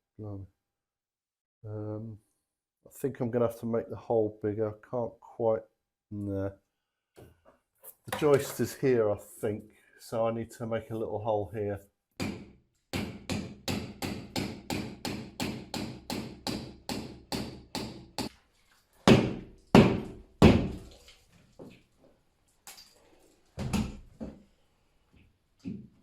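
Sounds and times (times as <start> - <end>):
knocking through plasterboard ceiling: 12.2 - 18.3, 19.0 - 20.9.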